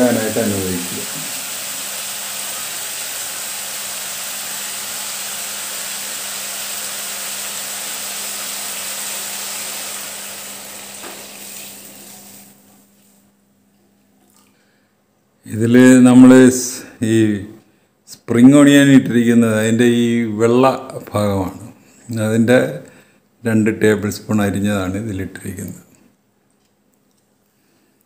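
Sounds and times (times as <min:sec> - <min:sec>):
vegetables sizzling in a wok: 0:00.0 - 0:12.8.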